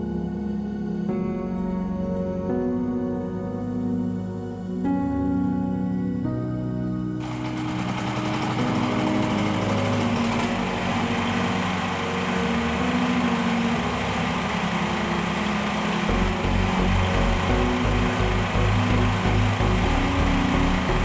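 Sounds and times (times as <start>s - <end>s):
background music with held chords: 0.0s - 21.0s
small generator engine running: 7.2s - 21.0s
low pulsing beat: 16.1s - 21.0s.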